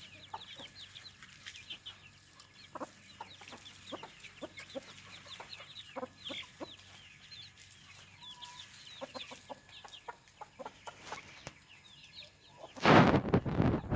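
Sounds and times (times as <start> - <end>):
chickens clucking: 0.0 - 13.9
wind gust on microphone: 12.8 - 13.9.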